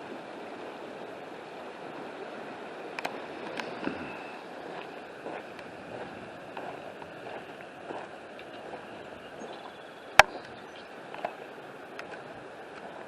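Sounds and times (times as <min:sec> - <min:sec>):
floodwater rushing: 0:00.0 - 0:13.0
faint sharp clicks: 0:03.0 - 0:04.0, 0:09.6 - 0:12.9.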